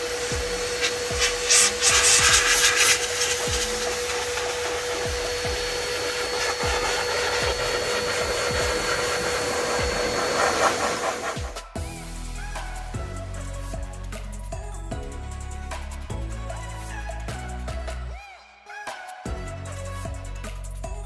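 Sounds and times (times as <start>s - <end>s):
rush of air: 0.0s - 11.6s
electric blower whining: 0.0s - 11.7s.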